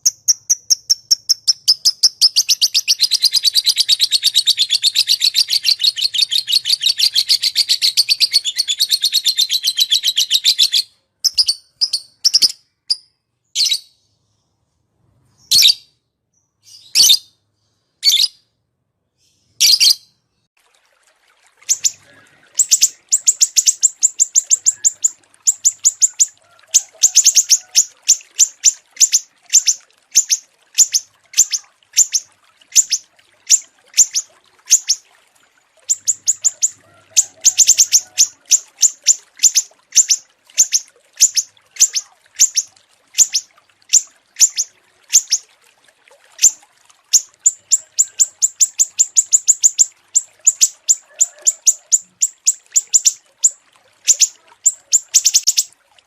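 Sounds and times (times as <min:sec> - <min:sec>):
songbird high chirps: 0:21.7 - 0:35.0.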